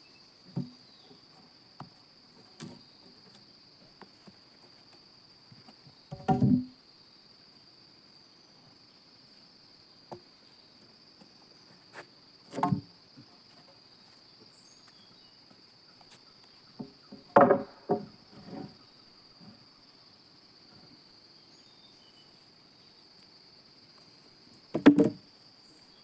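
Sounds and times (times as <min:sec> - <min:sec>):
insects droning: 0:00.0 - 0:26.0
wooden knocks and thumps: 0:00.5 - 0:00.8, 0:01.8 - 0:02.8, 0:06.1 - 0:06.7, 0:12.5 - 0:12.9, 0:16.8 - 0:18.8, 0:24.7 - 0:25.2.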